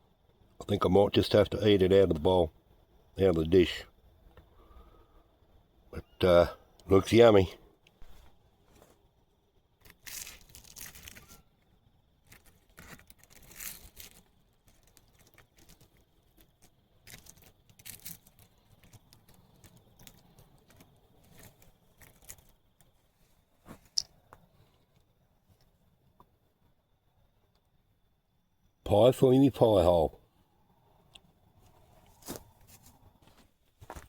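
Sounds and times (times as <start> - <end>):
pastry crackling: 9.8 - 11.6, 12.2 - 23.0.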